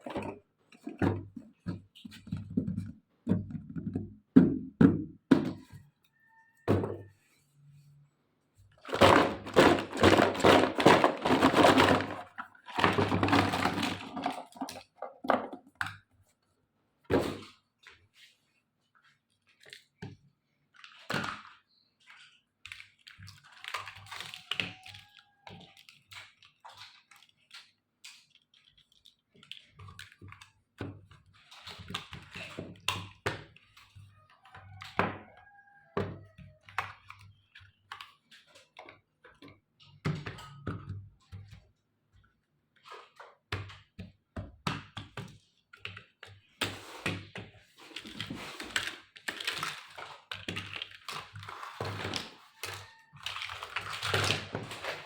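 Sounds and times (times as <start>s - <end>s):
packaging crackling: 48.0s - 55.0s.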